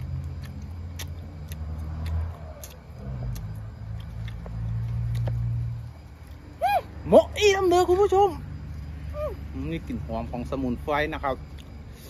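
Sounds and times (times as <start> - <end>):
man chewing wetly: 0.0 - 6.5, 11.4 - 12.0.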